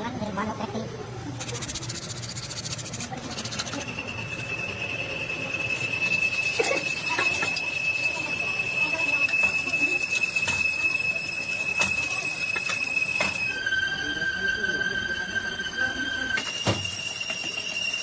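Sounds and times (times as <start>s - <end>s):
fast fine ticking: 1.4s - 4.7s
high-pitched mechanical squeal: 1.4s - 18.0s.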